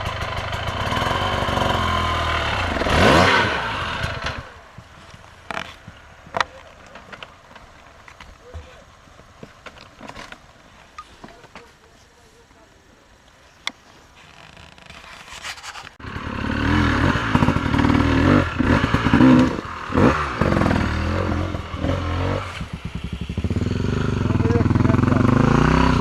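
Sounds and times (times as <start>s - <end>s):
motorcycle engine revving: 0.0s - 6.6s, 16.0s - 26.0s.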